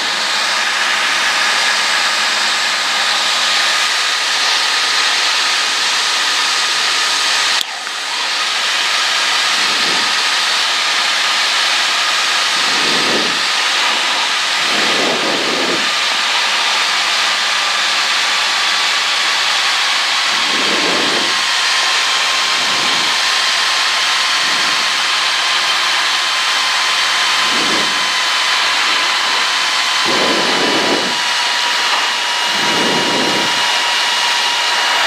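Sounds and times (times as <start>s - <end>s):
airplane engine and propeller: 0.0s - 35.0s
rushing hiss of airflow: 20.2s - 35.0s.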